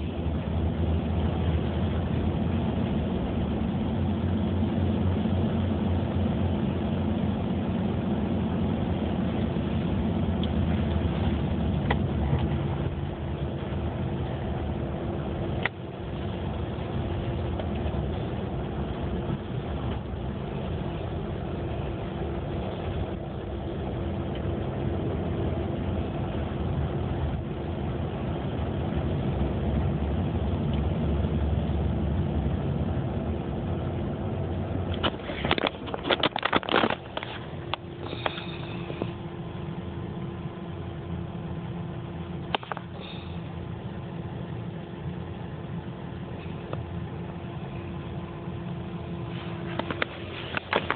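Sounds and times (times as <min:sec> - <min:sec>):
car engine and road rumble: 0:00.0 - 0:50.9
clicks and rattles: 0:34.9 - 0:38.5, 0:49.7 - 0:50.9.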